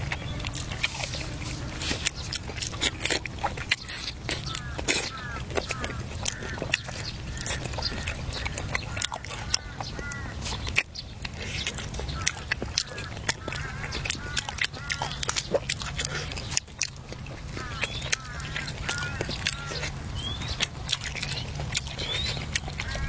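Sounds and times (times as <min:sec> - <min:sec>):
steady low hum: 0:00.0 - 0:14.3
crunchy chewing: 0:00.0 - 0:23.0.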